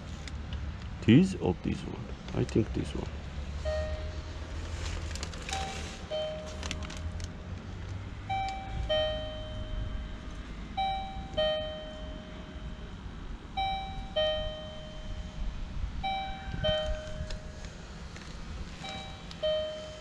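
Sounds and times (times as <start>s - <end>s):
low steady rumble: 0.0s - 20.0s
two-tone doorbell chime: 8.3s - 10.2s, 10.8s - 13.0s, 13.6s - 17.6s, 18.8s - 20.0s.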